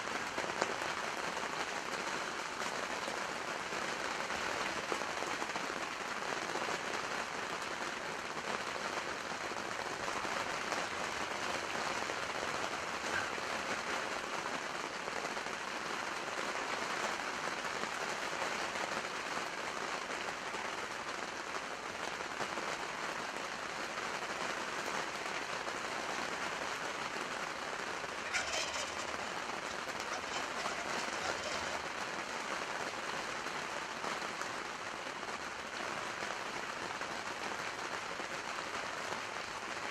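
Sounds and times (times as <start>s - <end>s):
steady rain: 0.0s - 39.9s
turkey gobbling: 28.2s - 31.9s.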